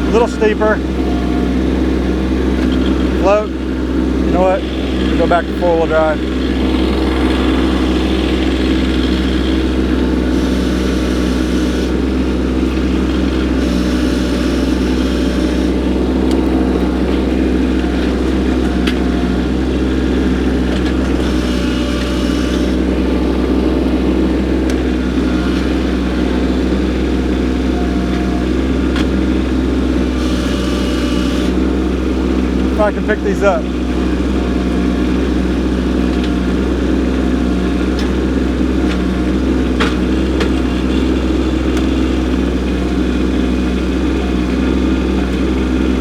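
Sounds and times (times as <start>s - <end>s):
tractor diesel engine under load: 0.0s - 46.0s.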